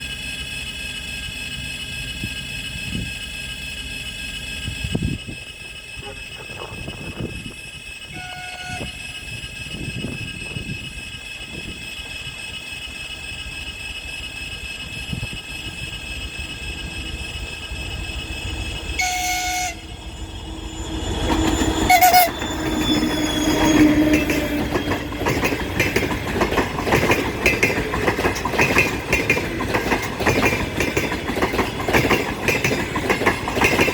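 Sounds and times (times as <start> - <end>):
diesel locomotive engine: 0.0 - 33.9
locomotive horn toots: 5.7 - 7.5, 8.1 - 9.3, 19.0 - 24.5
train wheels clattering over rail joints: 21.2 - 33.9.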